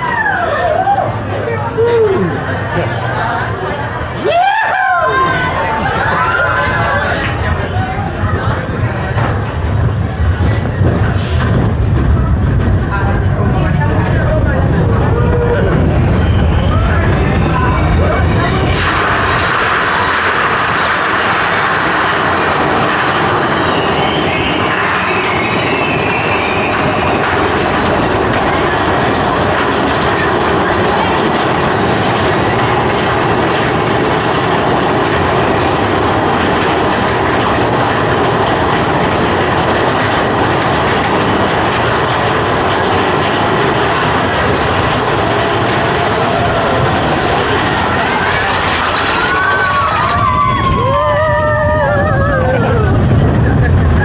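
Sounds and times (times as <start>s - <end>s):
roller coaster wheels rattling: 0.0s - 54.0s
wavering squeal: 15.1s - 20.3s, 21.2s - 28.5s, 41.9s - 52.8s.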